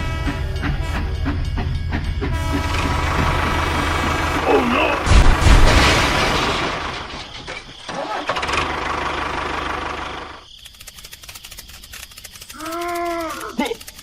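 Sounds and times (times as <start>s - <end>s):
engine humming: 0.0s - 10.5s
rapid ticking: 8.6s - 14.0s.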